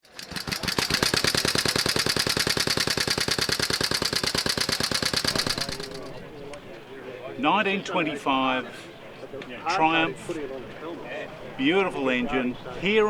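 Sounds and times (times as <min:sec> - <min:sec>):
single-cylinder engine running: 0:00.1 - 0:06.0.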